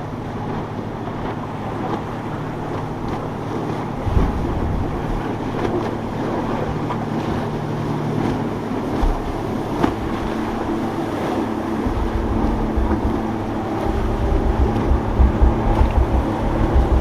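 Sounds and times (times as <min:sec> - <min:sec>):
boat engines running: 0:00.0 - 0:17.0
surf: 0:00.0 - 0:17.0
wind buffeting microphone: 0:00.0 - 0:17.0
low thump: 0:09.0 - 0:10.3, 0:11.8 - 0:17.0.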